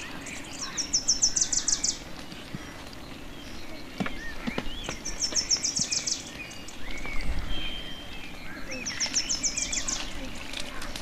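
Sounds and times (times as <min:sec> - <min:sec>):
songbird trill: 0:00.0 - 0:11.0
whistled bird notes: 0:03.3 - 0:10.9.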